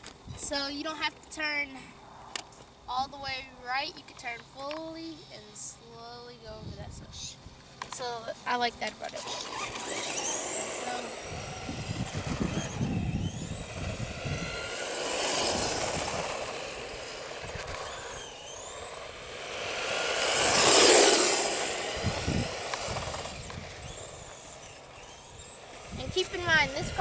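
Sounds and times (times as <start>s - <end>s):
rc truck motor whine: 0.0s - 27.0s
tyre noise on pavement: 7.5s - 27.0s.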